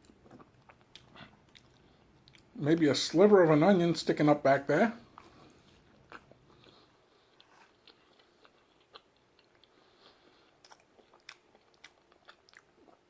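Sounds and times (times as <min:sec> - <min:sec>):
chewing mouth clicks and smacks: 0:00.0 - 0:02.5, 0:07.4 - 0:13.0.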